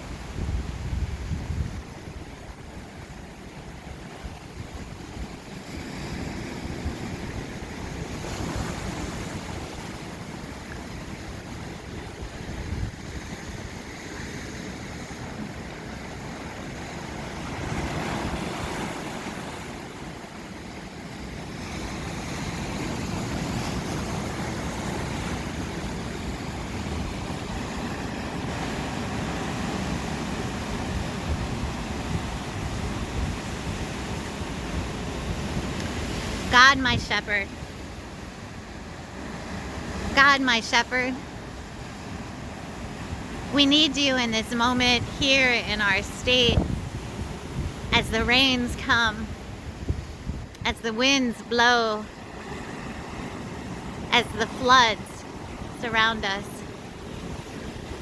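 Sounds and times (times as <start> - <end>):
wind buffeting microphone: 0.0 - 20.2, 21.7 - 40.2, 44.9 - 50.7
ocean surf washing ashore: 0.0 - 58.0.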